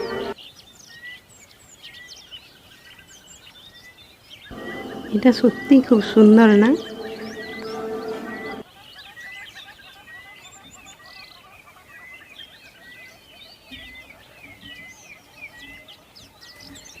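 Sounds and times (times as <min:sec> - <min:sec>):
birds chirping and calling: 0:00.0 - 0:17.0.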